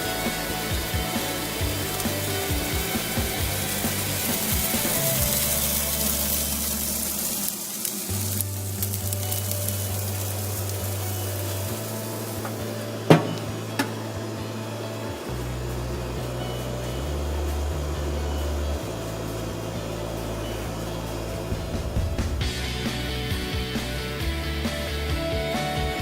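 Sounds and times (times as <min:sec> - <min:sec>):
background music with bass: 0:00.0 - 0:26.0
food sizzling on a grill: 0:00.0 - 0:26.0.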